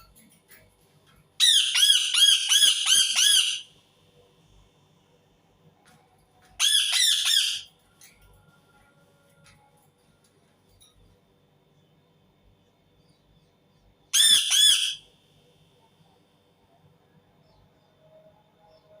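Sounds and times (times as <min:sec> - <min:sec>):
parakeet screeching: 0:01.4 - 0:03.7, 0:06.6 - 0:07.7, 0:14.2 - 0:15.0.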